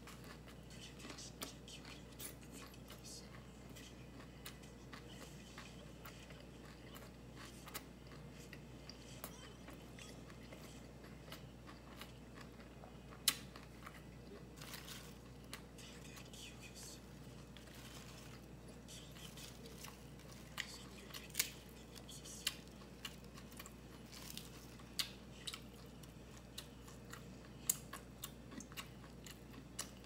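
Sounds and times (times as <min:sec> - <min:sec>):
faint chewing: 0:00.0 - 0:30.0.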